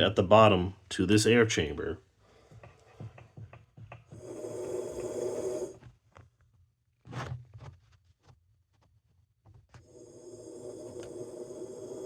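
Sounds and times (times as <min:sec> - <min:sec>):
person blowing through a hose: 0:04.0 - 0:05.8, 0:09.8 - 0:12.0.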